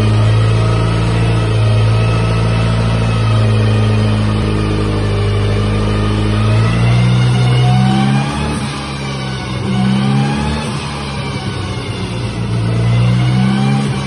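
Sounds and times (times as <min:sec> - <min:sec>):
car engine running on a dyno: 0:00.0 - 0:14.0.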